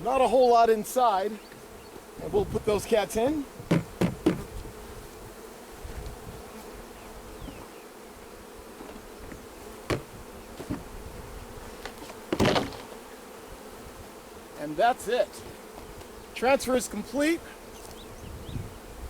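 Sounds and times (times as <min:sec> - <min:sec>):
bees buzzing: 0:00.0 - 0:19.0
hive equipment knocking: 0:03.6 - 0:04.6, 0:08.8 - 0:11.0, 0:11.8 - 0:13.0.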